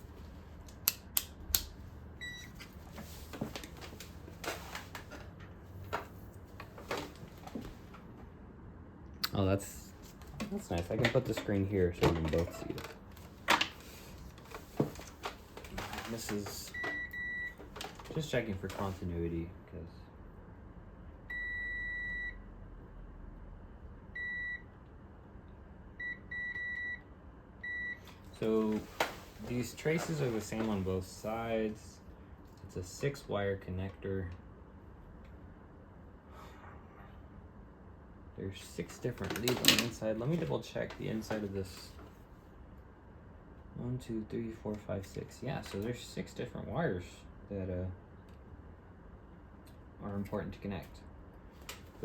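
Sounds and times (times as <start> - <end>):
multimeter beep: 2.2 - 2.6, 16.7 - 17.6, 21.3 - 22.4, 24.2 - 24.6, 26.0 - 27.0, 27.6 - 28.0
clicks and handling noises: 10.0 - 17.0, 38.8 - 42.1.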